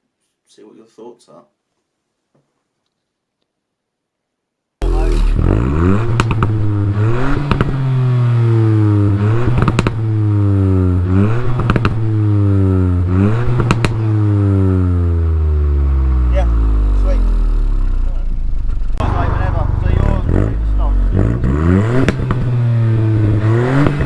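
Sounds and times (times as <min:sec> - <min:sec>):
car engine revving: 0:04.8 - 0:24.0
exhaust cracks: 0:04.8 - 0:24.0.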